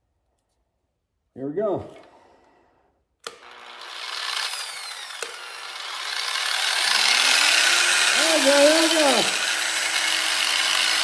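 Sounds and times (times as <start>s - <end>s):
electric grinder switch click: 3.2s - 3.6s, 5.1s - 5.4s
grinder grinding metal frame: 3.3s - 11.0s.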